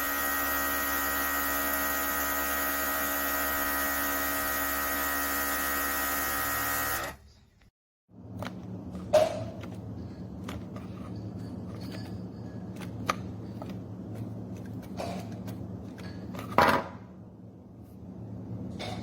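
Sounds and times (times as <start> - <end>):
steady low hum: 7.3 - 19.0.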